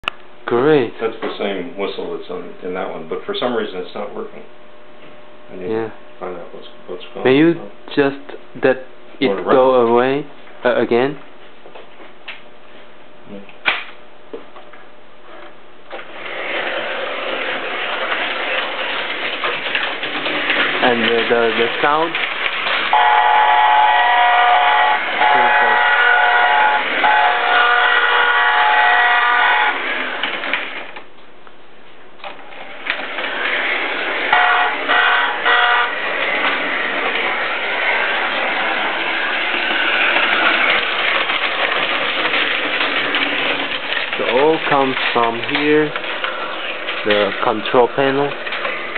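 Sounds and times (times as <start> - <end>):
model train running: 16.1 - 31.0, 32.5 - 48.9.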